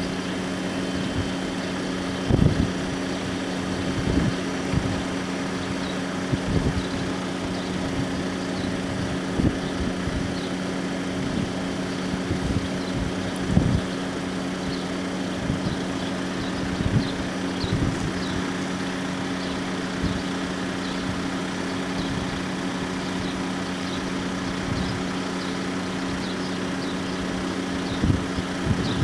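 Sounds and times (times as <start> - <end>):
vehicle engines idling: 0.0 - 29.0
wind thumping on microphone: 2.2 - 3.0, 3.8 - 5.1, 6.3 - 7.0, 12.2 - 13.9, 16.6 - 18.4, 27.9 - 29.0.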